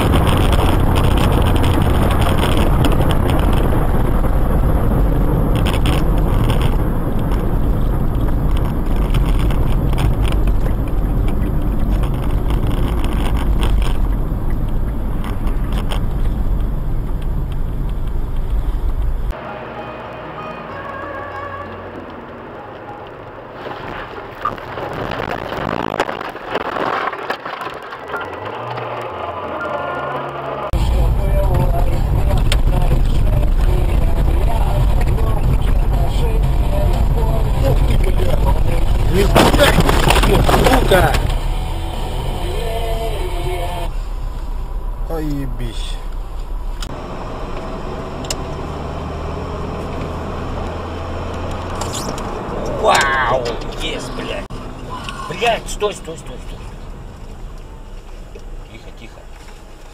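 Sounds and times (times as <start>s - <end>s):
wind on microphone: 0.0s - 19.3s
car engine running: 0.0s - 19.4s, 24.5s - 59.9s
vehicle and road noise: 0.0s - 59.9s.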